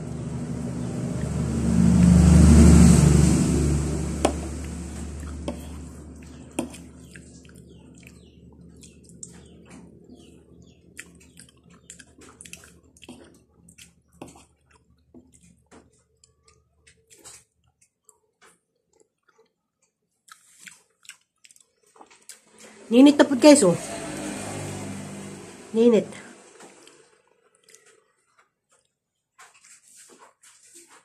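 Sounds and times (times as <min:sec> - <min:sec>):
wet chewing and mouth-smacking: 0:04.6 - 0:22.6, 0:26.8 - 0:30.6.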